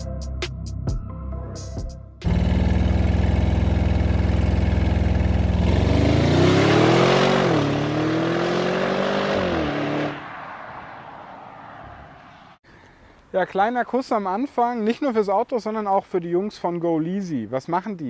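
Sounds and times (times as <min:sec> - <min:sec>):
car engine accelerating: 0:02.2 - 0:10.2.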